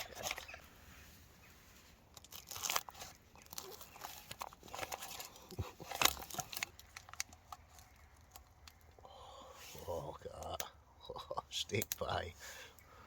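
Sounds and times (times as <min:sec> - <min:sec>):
food wrapping crinkling and tearing: 0:02.1 - 0:09.0.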